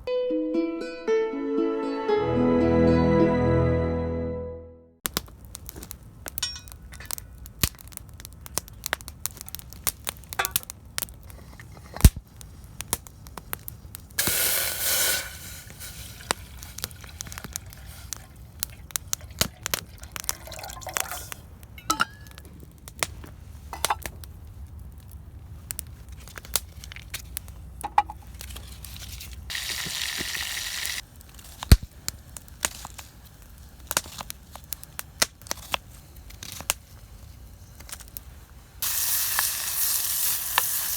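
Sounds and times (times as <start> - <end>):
campfire crackling: 5.1 - 40.9
hissing noise: 14.2 - 16.2.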